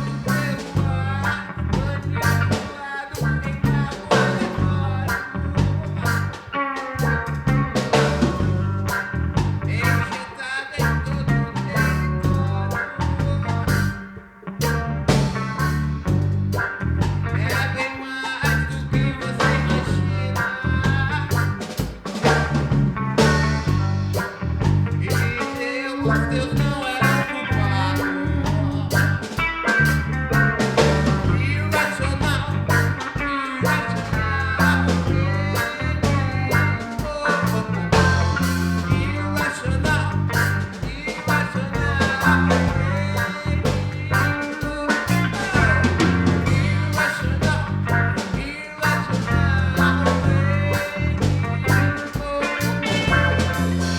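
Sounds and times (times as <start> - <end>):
bass line: 0.0 - 53.9
guitar: 0.0 - 53.9
drum beat: 21.3 - 25.6, 27.9 - 39.2, 43.7 - 53.9.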